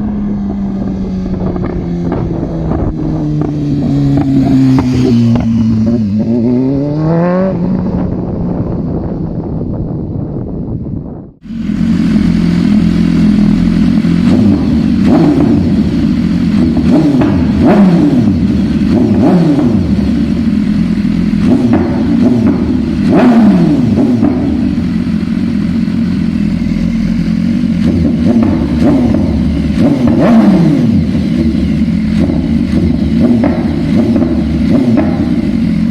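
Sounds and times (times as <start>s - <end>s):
motorcycle engine revving: 0.0s - 35.9s
exhaust cracks: 11.5s - 35.9s.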